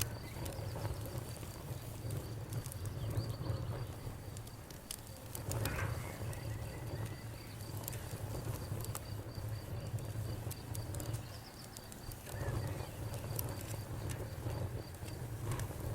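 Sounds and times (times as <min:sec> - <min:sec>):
campfire crackling and popping: 0:00.0 - 0:15.9.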